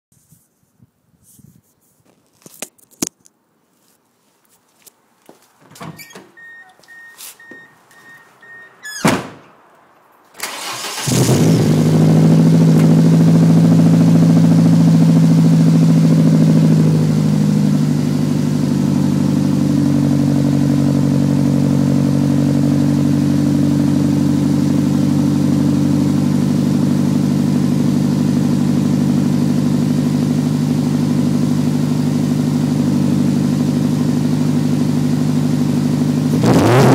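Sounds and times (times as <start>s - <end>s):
beeping chime: 6.4s - 8.8s
car engine cranking and starting: 10.3s - 36.9s
car engine idling loud exhaust: 11.1s - 36.5s.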